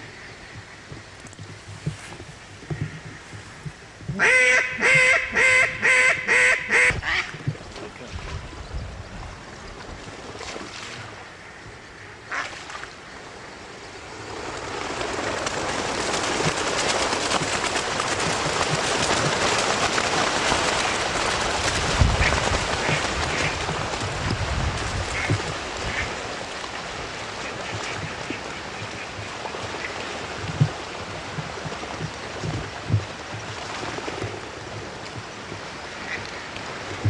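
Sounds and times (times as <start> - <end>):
duck quacks: 4.1 - 7.3.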